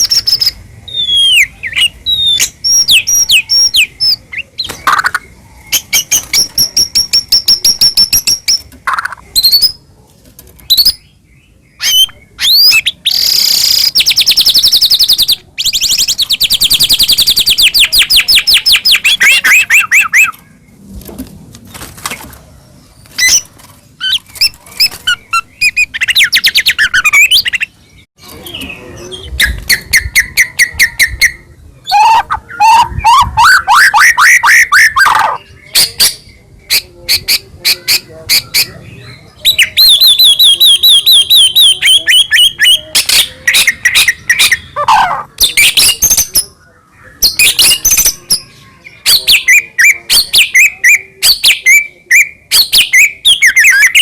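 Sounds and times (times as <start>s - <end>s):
bird singing whistled notes: 0.0s - 8.6s.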